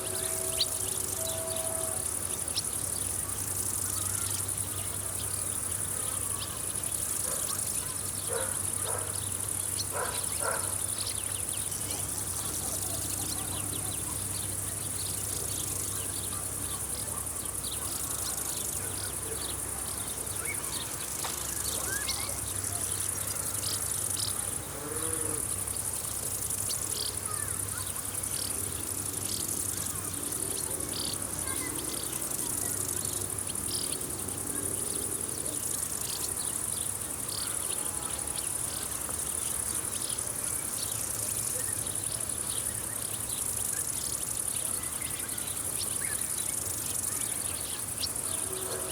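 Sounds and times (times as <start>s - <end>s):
insects chirring: 0.0s - 48.9s.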